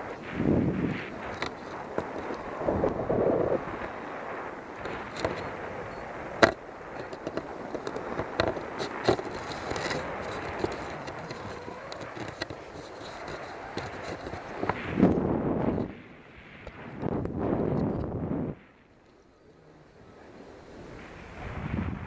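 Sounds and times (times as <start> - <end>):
wind rushing over microphone: 0.0 - 22.0
sharp clicks and knocks: 6.4 - 15.2.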